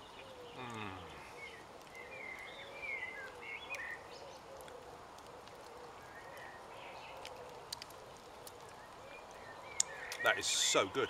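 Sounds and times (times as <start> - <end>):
birds chirping and whistling: 0.0 - 4.5, 9.2 - 10.7
faint outdoor hush: 0.0 - 11.0.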